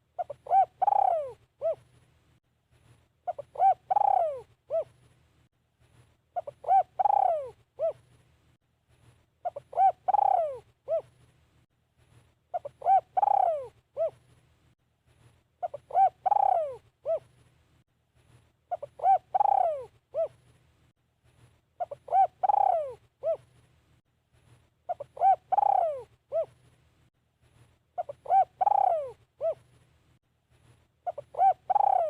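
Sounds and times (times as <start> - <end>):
dove cooing: 0.0 - 1.9, 3.2 - 5.0, 6.4 - 8.1, 9.4 - 11.2, 12.5 - 14.2, 15.6 - 17.3, 18.7 - 20.4, 21.8 - 23.5, 24.9 - 26.6, 28.0 - 29.7, 31.0 - 32.0.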